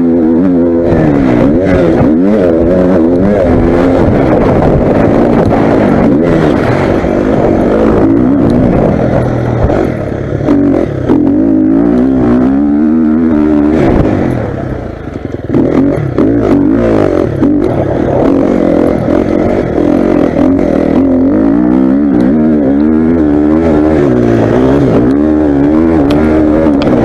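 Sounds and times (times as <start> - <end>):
motocross bike engines revving: 0.0 - 27.0.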